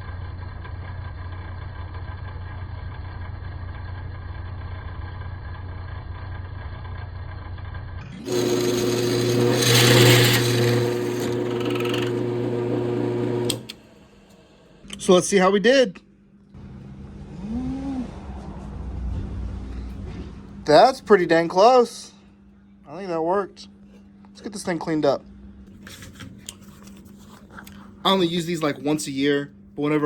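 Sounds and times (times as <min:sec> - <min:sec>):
drill press motor hum: 0:08.0 - 0:15.0
drill bit cutting metal: 0:08.2 - 0:14.4.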